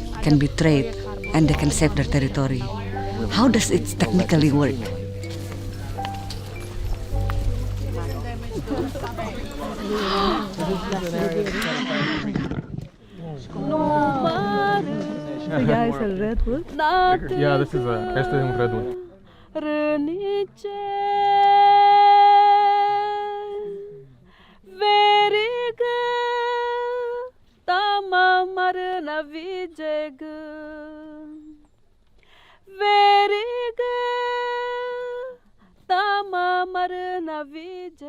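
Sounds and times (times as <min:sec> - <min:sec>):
woman singing unaccompanied: 0:00.0 - 0:05.2, 0:13.5 - 0:24.0, 0:24.6 - 0:31.6, 0:32.6 - 0:38.0.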